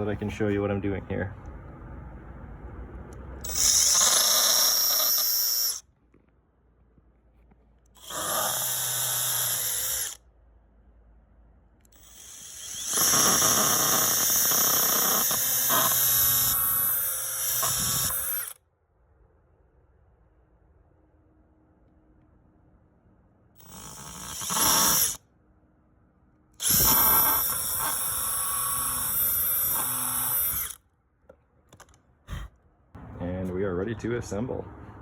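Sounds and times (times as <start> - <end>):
power drill whining: 3.4 - 5.8, 8.0 - 10.2, 11.9 - 18.6, 23.6 - 25.2, 26.6 - 30.8.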